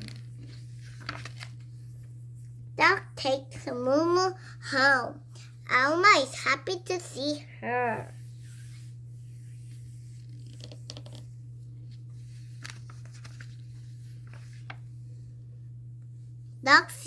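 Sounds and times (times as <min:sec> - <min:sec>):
paper pages rustling: 0:00.0 - 0:02.1, 0:09.6 - 0:11.3, 0:11.9 - 0:15.0
low electrical hum: 0:00.0 - 0:17.0.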